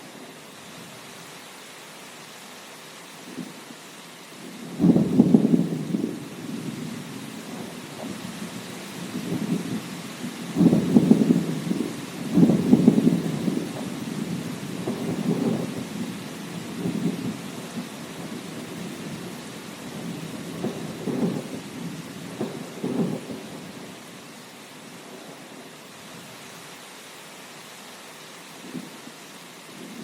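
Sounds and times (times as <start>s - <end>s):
steady rain: 0.0s - 30.0s
thunder rumbling: 4.5s - 24.2s.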